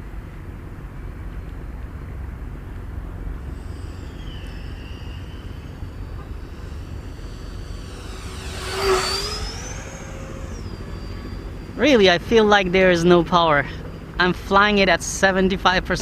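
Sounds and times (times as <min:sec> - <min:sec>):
steady low rumble: 0:01.6 - 0:14.3
electric ducted-fan motor whining: 0:02.9 - 0:15.4.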